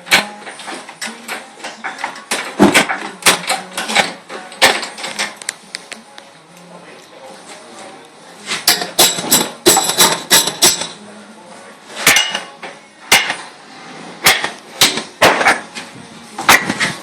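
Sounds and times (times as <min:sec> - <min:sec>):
hammer striking metal: 0:12.0 - 0:13.5, 0:14.2 - 0:15.6.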